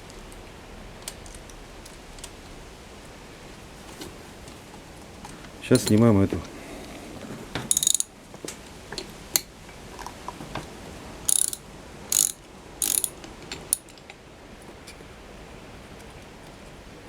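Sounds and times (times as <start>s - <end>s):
ratchet wrench clicking: 7.7s - 8.1s, 11.3s - 13.9s.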